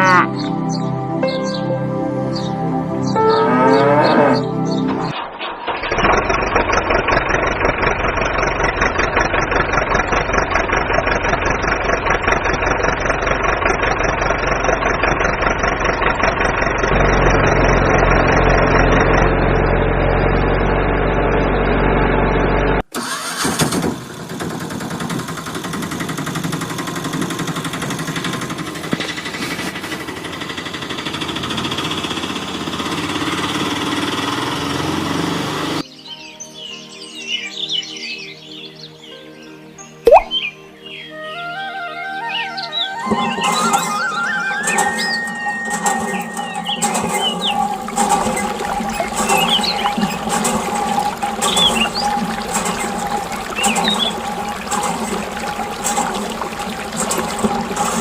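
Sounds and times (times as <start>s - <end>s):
tractor engine running: 4.6s - 35.8s, 43.1s - 58.0s.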